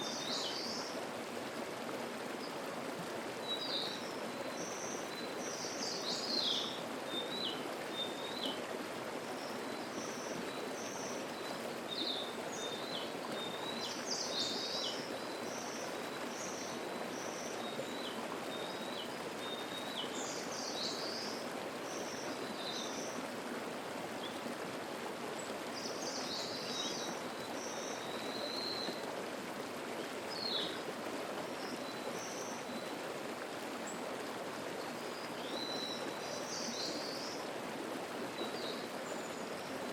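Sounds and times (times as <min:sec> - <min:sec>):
mountain stream babbling: 0:00.0 - 0:39.9
songbirds singing: 0:03.4 - 0:08.6, 0:09.3 - 0:23.2, 0:25.4 - 0:29.0, 0:30.0 - 0:30.8, 0:34.8 - 0:37.5.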